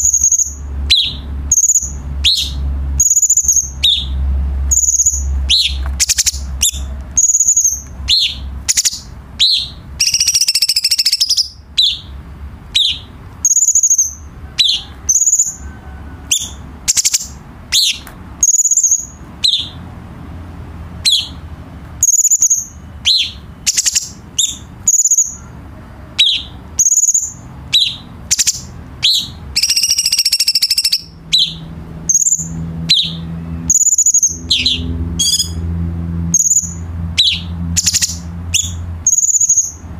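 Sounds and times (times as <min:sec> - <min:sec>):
bird chirps and whistles: 0:00.0 - 0:15.6, 0:16.3 - 0:19.8, 0:21.0 - 0:21.4, 0:22.0 - 0:25.4, 0:26.2 - 0:35.6, 0:36.3 - 0:39.8
bird buzzy trill: 0:00.0 - 0:39.9.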